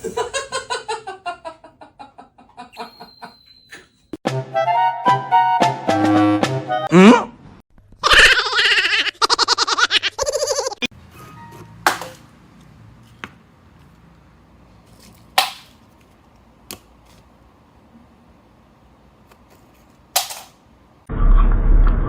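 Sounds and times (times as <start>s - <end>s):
loud noise with low rumble: 21.1s - 22.0s.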